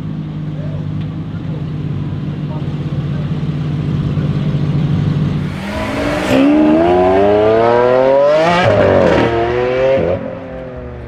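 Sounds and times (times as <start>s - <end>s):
sports car engine accelerating: 2.6s - 11.0s.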